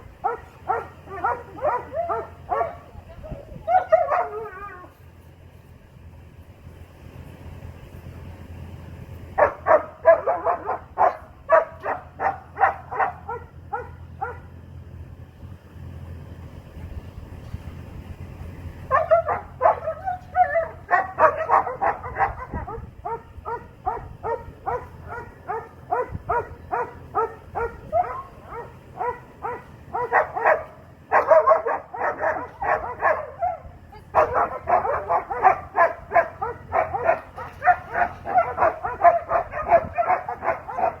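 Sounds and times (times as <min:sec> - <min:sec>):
dog barking rapidly: 0:00.2 - 0:03.0, 0:03.6 - 0:04.6, 0:09.4 - 0:14.5, 0:18.9 - 0:41.0.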